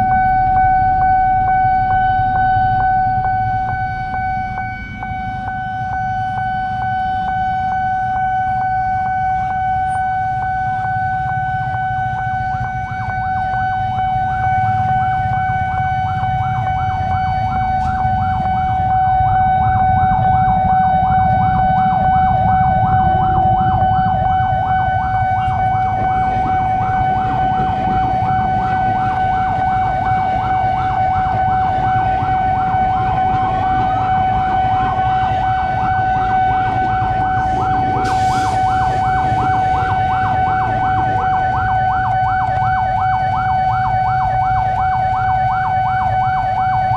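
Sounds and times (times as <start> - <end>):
level-crossing alarm pulsing: 0.0 - 46.9
electric train rumbling past: 13.7 - 43.0.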